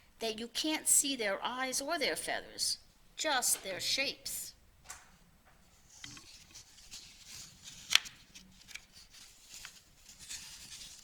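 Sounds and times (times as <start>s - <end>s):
paper page rustling and turning: 5.6s - 11.0s.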